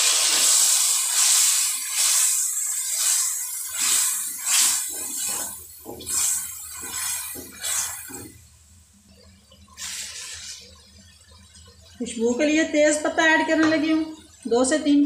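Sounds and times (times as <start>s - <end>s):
masala sizzling in hot oil: 0.0s - 15.0s
spatula stirring: 3.7s - 8.4s.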